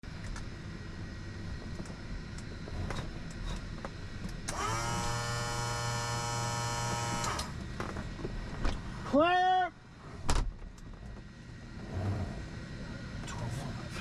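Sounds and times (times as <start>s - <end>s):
low steady hum: 0.0s - 14.0s
small electric motor whirring: 4.5s - 7.6s.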